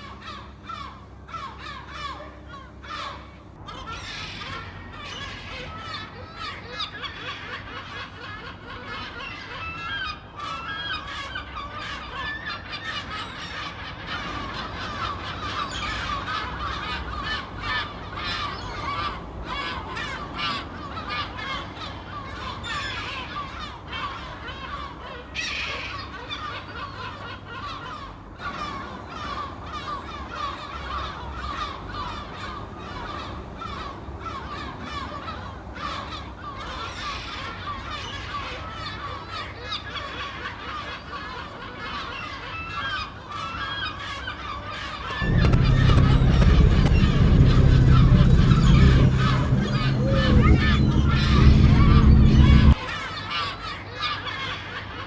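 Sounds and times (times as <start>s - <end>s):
gulls calling: 45.2s - 52.8s
low steady rumble: 45.2s - 52.8s.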